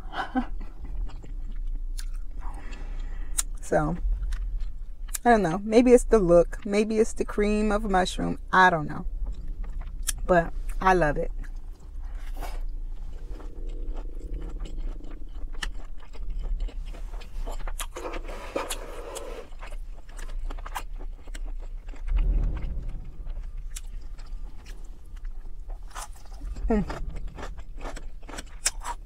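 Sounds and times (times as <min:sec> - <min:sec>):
chewing with wet mouth clicks: 0:00.6 - 0:05.6, 0:11.4 - 0:23.0, 0:25.1 - 0:29.0.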